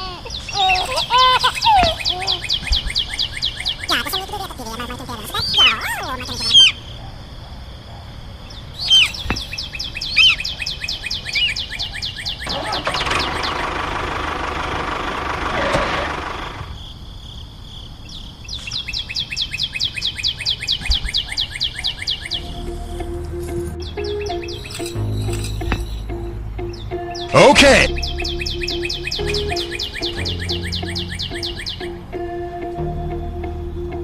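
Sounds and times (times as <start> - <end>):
bird trilling: 0.0 - 7.0, 8.7 - 13.8, 18.5 - 22.7, 23.8 - 32.0.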